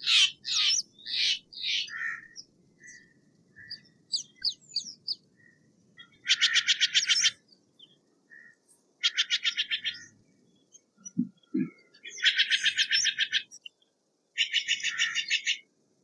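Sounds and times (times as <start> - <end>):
jay calling: 0.0 - 2.4, 6.0 - 7.4.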